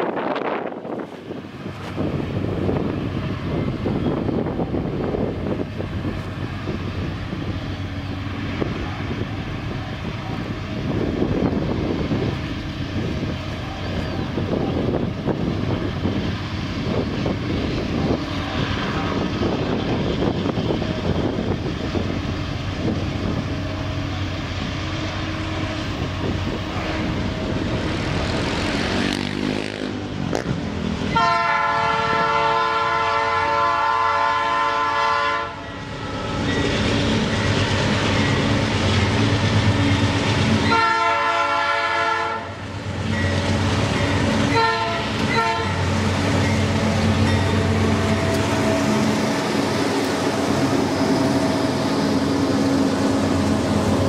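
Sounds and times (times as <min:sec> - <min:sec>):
diesel locomotives rumbling: 0:00.0 - 0:54.0
locomotive air horn: 0:31.1 - 0:35.6, 0:40.6 - 0:42.6, 0:44.5 - 0:45.9.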